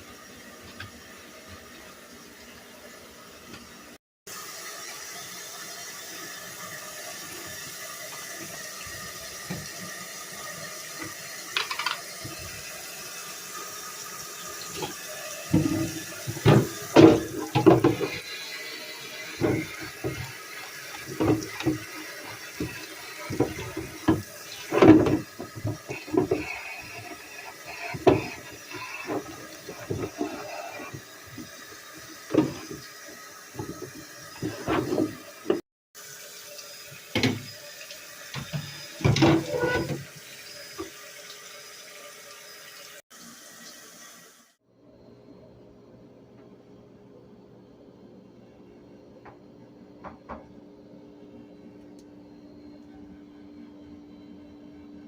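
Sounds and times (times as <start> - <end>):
tap running into sink: 7.5 - 12.6, 14.6 - 18.2, 19.1 - 35.6, 37.0 - 37.6
objects knocking and clattering: 11.6 - 12.0, 15.6 - 18.2, 21.0 - 21.9, 22.5 - 26.6, 27.7 - 31.0.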